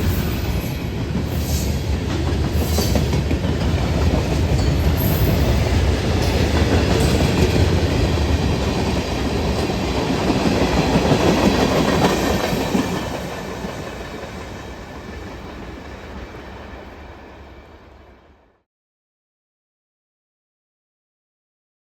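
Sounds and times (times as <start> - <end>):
train wheels clacking and rumbling: 0.0 - 16.9.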